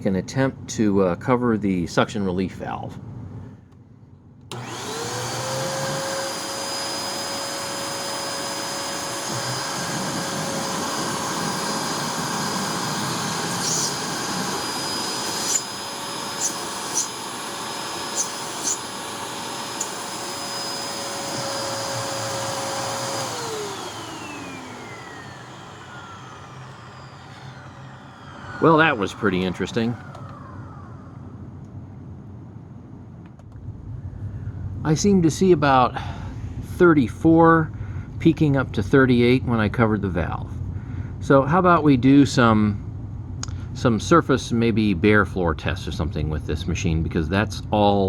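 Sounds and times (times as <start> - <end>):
vacuum motor whining: 4.5 - 31.8
sharp clicks: 19.8 - 20.0.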